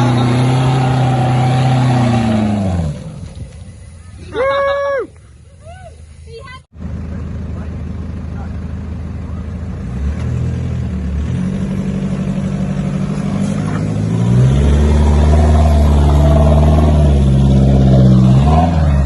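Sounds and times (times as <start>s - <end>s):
engine revving under load: 0.0s - 3.4s, 9.3s - 19.0s.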